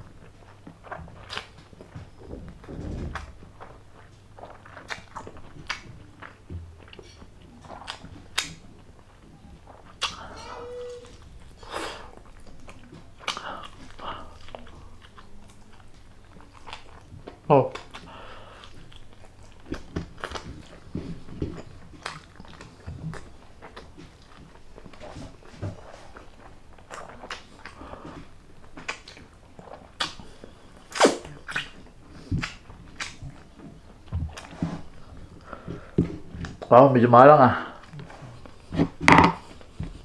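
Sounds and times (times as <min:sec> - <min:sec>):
person chewing and biting: 0:00.0 - 0:36.7.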